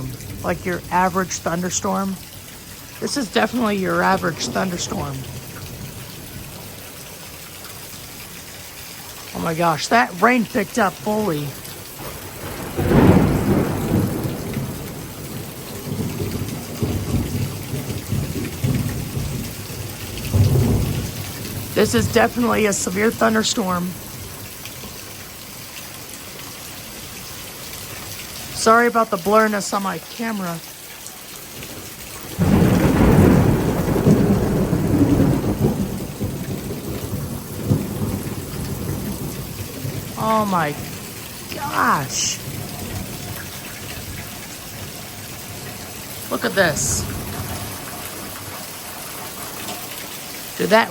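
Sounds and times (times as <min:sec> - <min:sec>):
thunder rumbling: 0:00.0 - 0:08.2, 0:09.2 - 0:25.0, 0:31.6 - 0:50.9
heavy rain hissing: 0:00.0 - 0:50.9
thunderclap rolling into rumble: 0:11.7 - 0:22.6, 0:32.3 - 0:40.2, 0:47.0 - 0:48.6.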